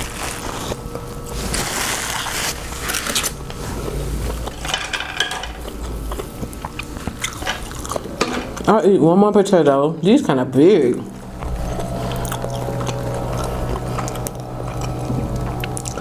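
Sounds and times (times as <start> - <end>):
person chewing and crunching food: 5.5 - 8.7.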